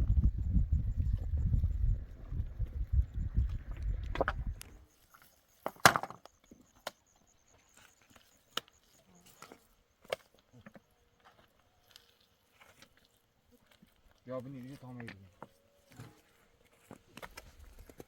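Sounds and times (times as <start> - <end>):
low rumble: 0.0 - 4.8.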